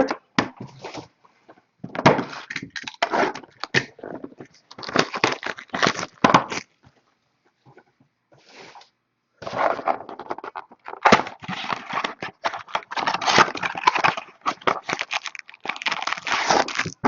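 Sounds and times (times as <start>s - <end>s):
packaging rustle: 4.5s - 6.7s, 10.8s - 17.0s
packaging being torn open: 4.7s - 6.7s, 11.0s - 17.0s.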